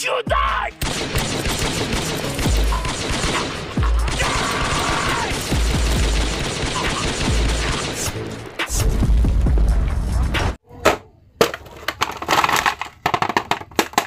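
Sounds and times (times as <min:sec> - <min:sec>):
rapid pistol gunfire: 0:00.8 - 0:08.3.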